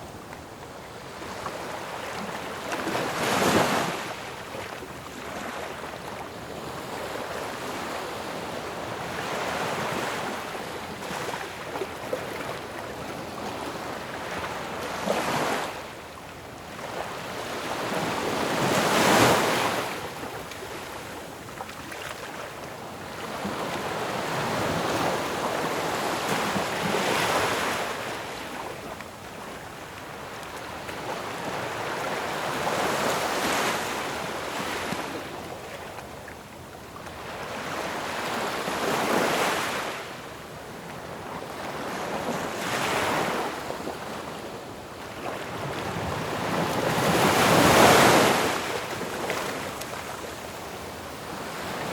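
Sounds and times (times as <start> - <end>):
ocean waves breaking on shore: 16.7 - 35.8, 41.0 - 51.9.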